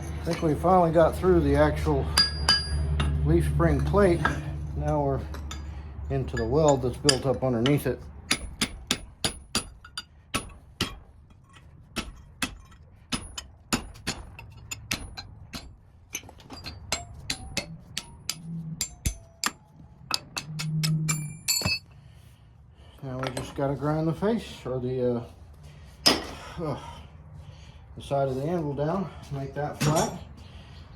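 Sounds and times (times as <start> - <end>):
metal tapping on steel: 2.1 - 3.2, 4.2 - 21.9.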